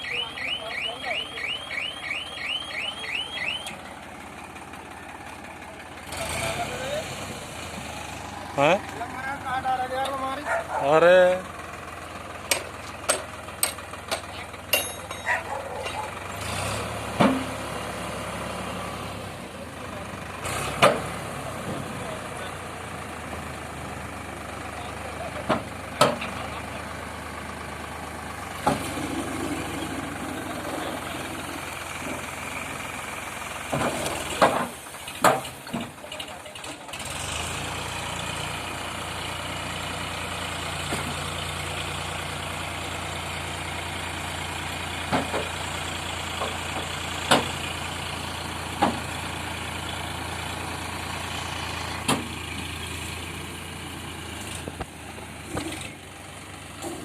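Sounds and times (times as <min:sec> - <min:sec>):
tractor diesel engine droning: 0:00.0 - 0:57.0
sharp engine knocks: 0:12.5 - 0:15.2, 0:17.1 - 0:17.6, 0:25.4 - 0:26.5, 0:28.6 - 0:28.9, 0:33.7 - 0:36.7, 0:46.4 - 0:47.6, 0:48.8 - 0:49.0, 0:52.0 - 0:52.4.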